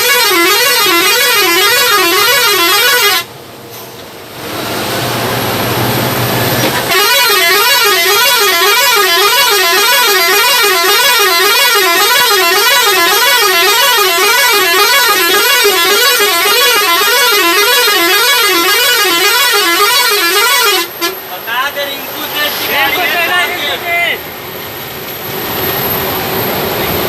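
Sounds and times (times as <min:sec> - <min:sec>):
electronic siren warbling: 0:07.0 - 0:20.6.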